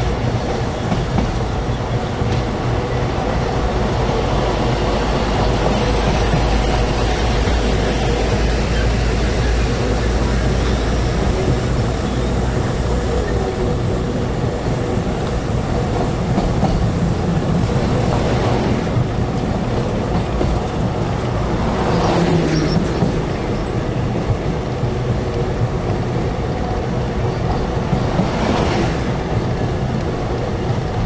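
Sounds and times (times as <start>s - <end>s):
train wheels rumbling on rails: 0.0s - 31.0s
rushing air: 27.0s - 30.9s.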